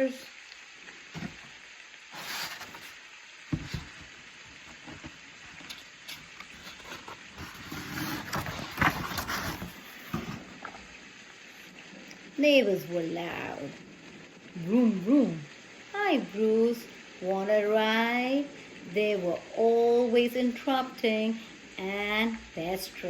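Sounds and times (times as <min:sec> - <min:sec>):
book pages rustling: 0:02.2 - 0:10.8.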